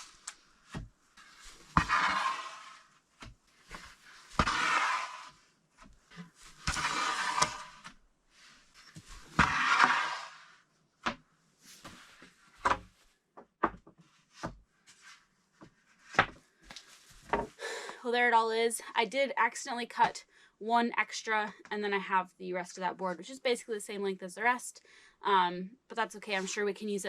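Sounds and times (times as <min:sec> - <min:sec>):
wooden boards sliding: 0:00.7 - 0:02.9, 0:03.7 - 0:05.4, 0:06.1 - 0:08.0, 0:08.9 - 0:10.5.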